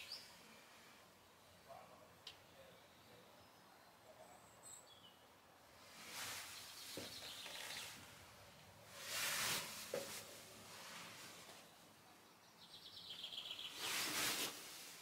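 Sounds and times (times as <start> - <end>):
rustling noise in woods: 5.8 - 11.9, 13.2 - 15.0
small bird trill: 6.6 - 8.0, 12.3 - 14.0.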